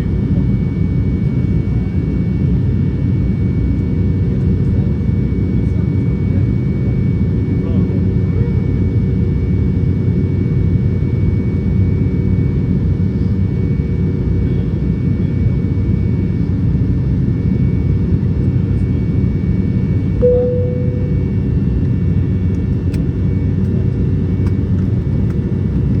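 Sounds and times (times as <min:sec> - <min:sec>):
airliner cabin engine rumble: 0:00.0 - 0:26.0
faint steady whine: 0:20.2 - 0:21.5
short tone: 0:20.2 - 0:21.5.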